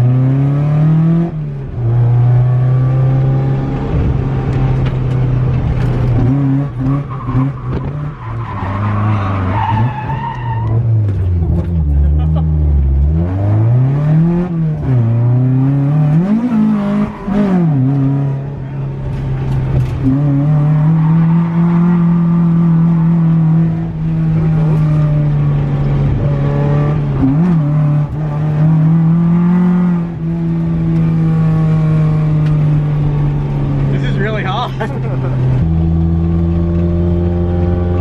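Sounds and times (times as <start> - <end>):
car engine revving hard: 19.8 - 38.0.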